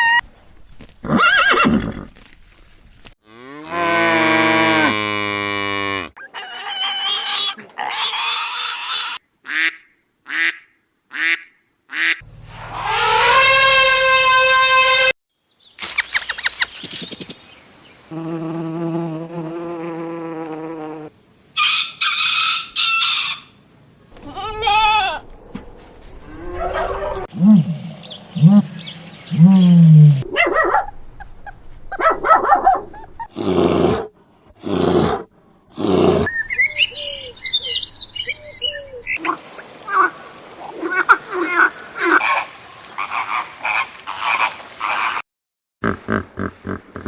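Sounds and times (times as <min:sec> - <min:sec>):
deep animal cries sliding in pitch: 0:12.6 - 0:15.0, 0:24.2 - 0:27.3
high animal calls: 0:26.2 - 0:27.7.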